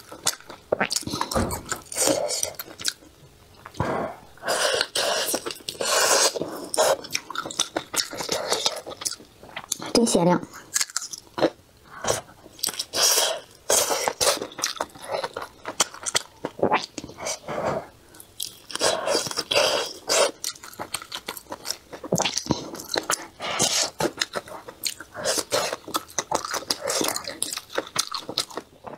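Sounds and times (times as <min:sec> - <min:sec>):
wet crackly mouth sounds: 0:00.0 - 0:17.5, 0:18.1 - 0:28.9
chewing and biting food: 0:04.7 - 0:10.0, 0:12.6 - 0:17.4, 0:18.1 - 0:28.9.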